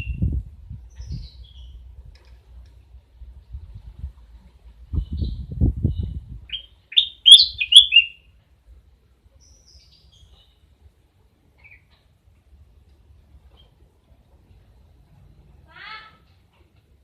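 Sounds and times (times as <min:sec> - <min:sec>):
owl chirps: 0:06.5 - 0:08.2.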